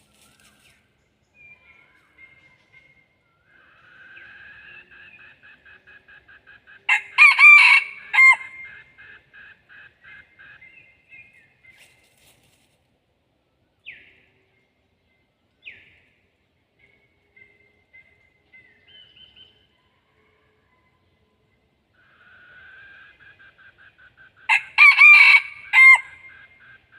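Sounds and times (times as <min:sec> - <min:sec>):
rooster crowing: 0:06.9 - 0:08.7, 0:24.5 - 0:26.3.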